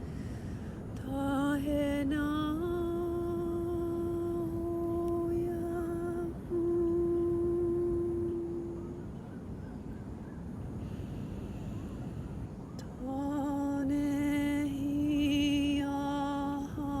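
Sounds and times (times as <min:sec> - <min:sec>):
breath: 0:00.0 - 0:00.9, 0:10.8 - 0:12.5
woman humming: 0:02.3 - 0:08.9.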